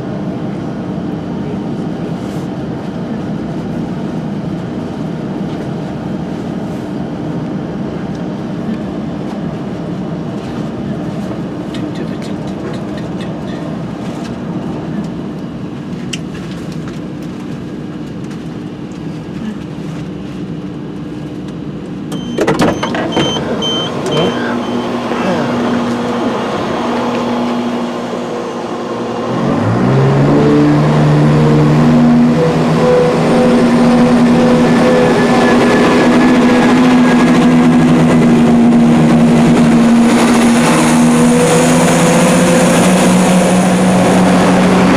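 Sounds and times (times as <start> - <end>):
diesel train running: 0.0 - 44.9
short high electronic beeps: 22.2 - 25.0.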